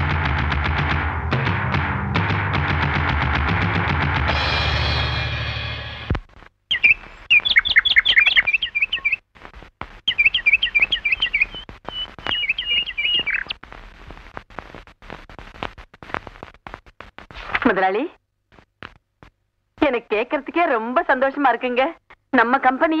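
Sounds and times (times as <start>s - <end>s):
faint clicks: 6.4s - 17.7s
small birds chirping: 6.7s - 9.3s, 10.0s - 13.6s.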